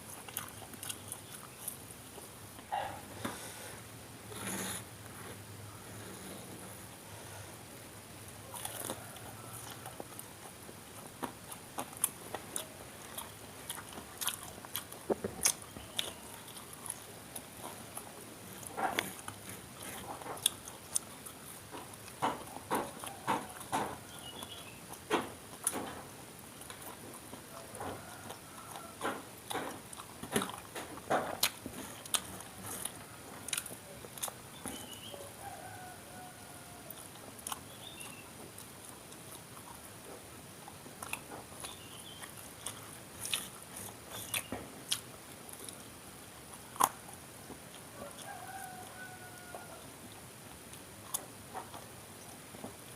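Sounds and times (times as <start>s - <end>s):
crunchy food chewing: 0.0s - 3.5s, 8.3s - 52.9s.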